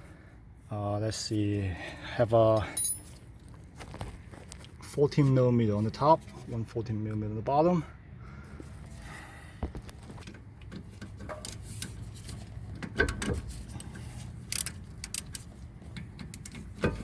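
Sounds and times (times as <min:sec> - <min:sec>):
ratchet clicks: 0:14.5 - 0:16.8.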